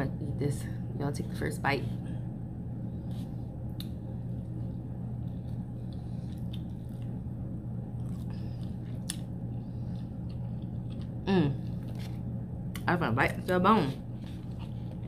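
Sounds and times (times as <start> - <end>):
steady low hum: 0.0 - 15.0
chewing with moist mouth sounds: 3.0 - 7.3, 7.9 - 13.5, 14.1 - 15.0.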